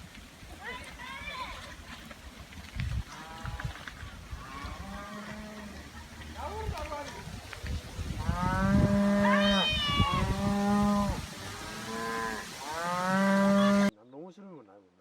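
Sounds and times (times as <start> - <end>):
cattle mooing: 4.4 - 5.9, 8.2 - 13.9.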